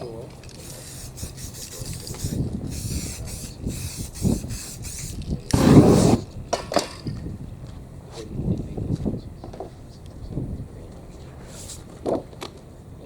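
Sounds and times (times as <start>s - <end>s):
spray paint can hissing: 0.6s - 6.2s.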